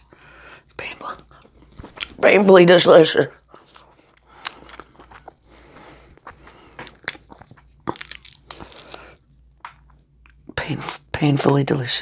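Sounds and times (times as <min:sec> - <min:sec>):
person chewing food: 0:01.2 - 0:02.2, 0:03.4 - 0:10.5
sharp crunches and wet clicks: 0:03.5 - 0:05.4, 0:06.1 - 0:10.4.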